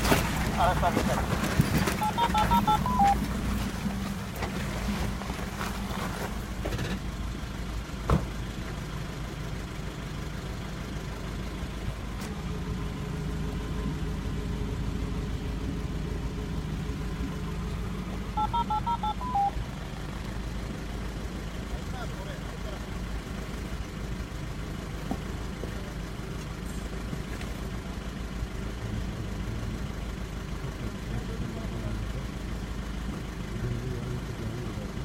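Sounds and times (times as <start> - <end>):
off-road vehicle engine running: 0.0 - 35.0
short electronic beeps: 2.0 - 3.2, 18.4 - 19.6.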